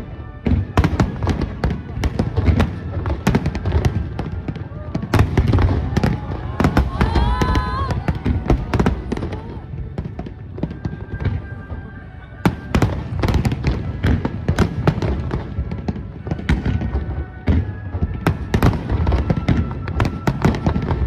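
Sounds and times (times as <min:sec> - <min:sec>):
deep fireworks booms: 0:00.0 - 0:21.0
fireworks bangs and crackles: 0:00.0 - 0:21.0
music playing: 0:00.0 - 0:21.0.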